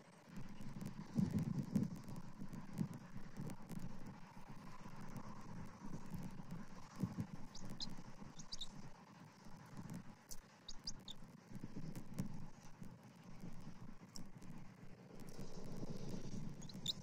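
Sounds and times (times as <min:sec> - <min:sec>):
high bird chirps: 0:07.5 - 0:08.7, 0:10.7 - 0:11.2, 0:16.6 - 0:17.0.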